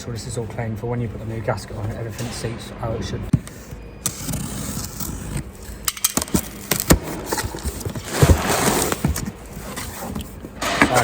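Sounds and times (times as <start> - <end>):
packaging rustling: 4.8 - 10.6.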